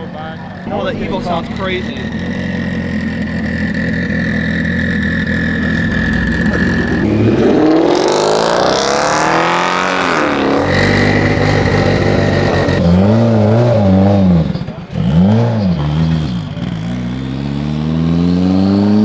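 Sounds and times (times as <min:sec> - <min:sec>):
car engine idling and revving: 0:00.0 - 0:19.0
high engine whistle: 0:00.8 - 0:08.2.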